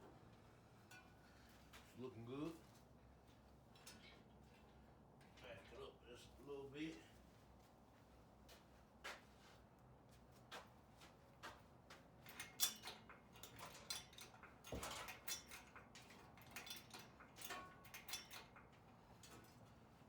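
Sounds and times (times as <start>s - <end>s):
engine hoist chain clicks and knocks: 12.2s - 19.6s.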